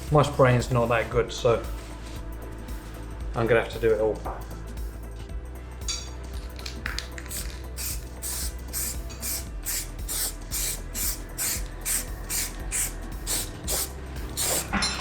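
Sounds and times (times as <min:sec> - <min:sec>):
spray paint can hissing: 0:06.9 - 0:14.8.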